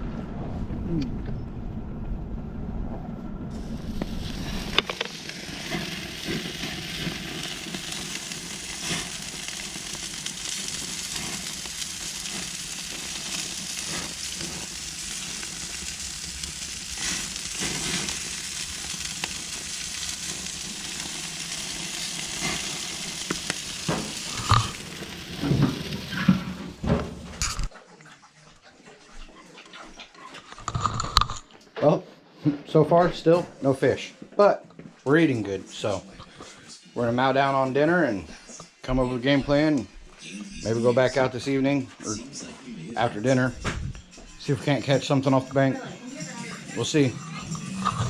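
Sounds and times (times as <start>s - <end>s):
food sizzling in a pan: 3.6s - 27.7s, 35.8s - 48.0s.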